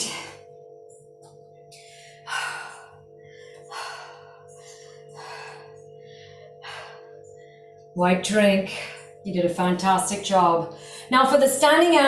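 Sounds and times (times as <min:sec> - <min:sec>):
faint steady hum: 0:00.0 - 0:12.0
woman breathing hard: 0:01.7 - 0:07.9.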